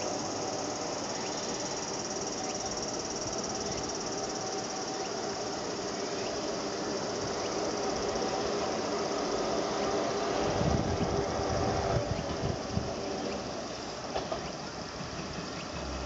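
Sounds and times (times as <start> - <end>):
insects shrilling: 0.0 - 11.5.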